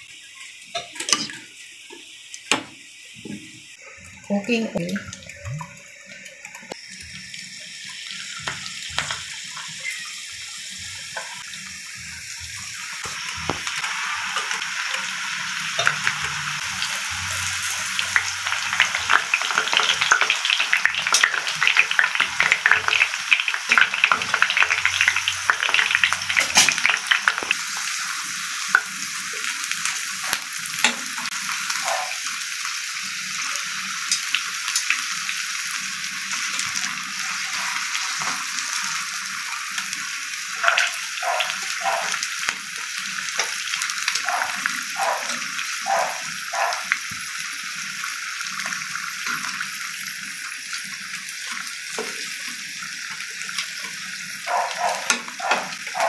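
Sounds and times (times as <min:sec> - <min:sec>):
leaves frying in hot oil: 0:00.0 - 0:56.0
crackling pops of frying: 0:00.6 - 0:03.5, 0:08.2 - 0:10.0, 0:12.4 - 0:15.1, 0:17.8 - 0:27.9, 0:28.6 - 0:31.8, 0:34.0 - 0:35.1, 0:38.0 - 0:45.6, 0:50.7 - 0:54.4.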